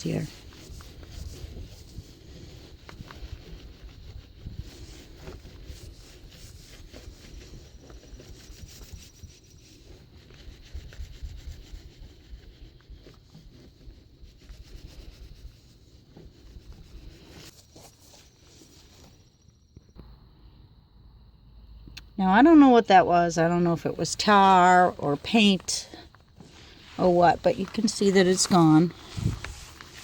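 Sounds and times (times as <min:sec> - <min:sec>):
rag rubbing car paint: 0:00.2 - 0:17.6.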